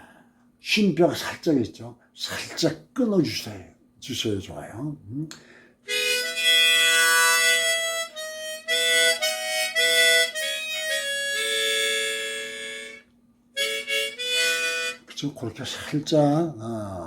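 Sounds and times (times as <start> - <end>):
harmonica melody: 5.8 - 15.3.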